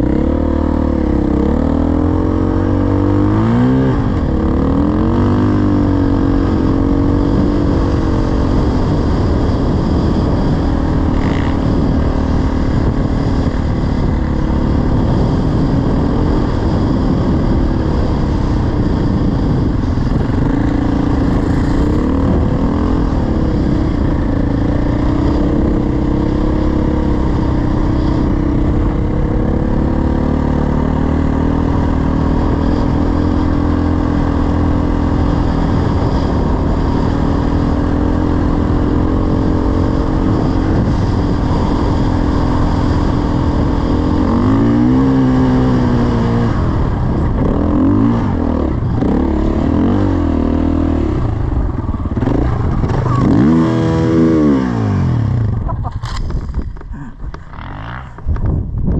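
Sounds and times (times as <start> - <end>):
dirt bike engine running: 0.0 - 58.9.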